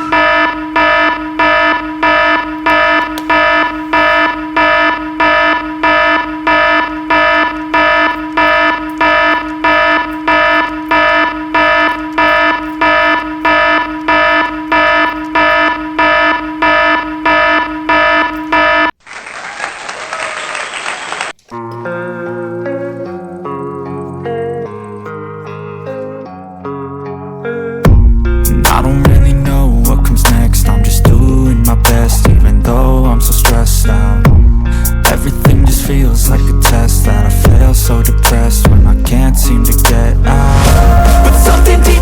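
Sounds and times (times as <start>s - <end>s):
fire alarm beeping: 0.0s - 19.0s, 28.7s - 39.6s.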